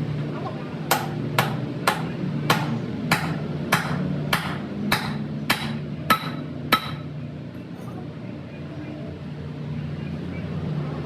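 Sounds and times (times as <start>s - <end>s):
hammer striking metal: 0.9s - 7.1s.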